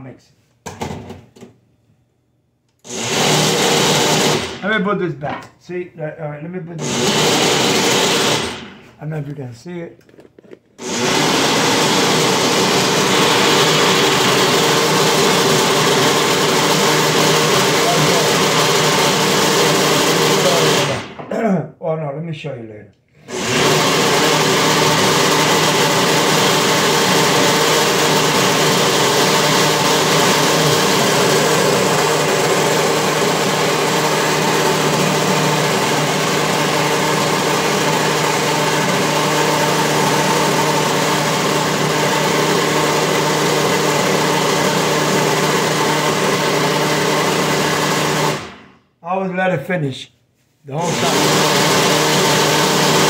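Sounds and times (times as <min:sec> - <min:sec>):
blender motor grinding: 0:02.8 - 0:04.6, 0:06.8 - 0:08.9, 0:10.8 - 0:21.2, 0:23.2 - 0:48.8, 0:50.8 - 0:53.0.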